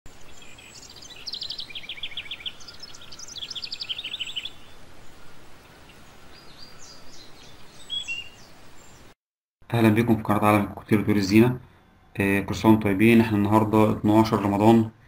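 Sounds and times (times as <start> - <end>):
faint bird chirps: 0.1 - 9.2
small birds trilling: 0.1 - 9.2.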